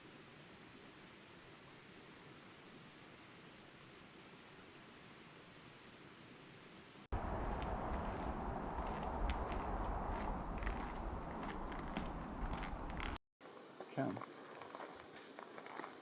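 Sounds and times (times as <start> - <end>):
insects droning: 0.0 - 13.8
low rumbling noise: 7.1 - 13.2.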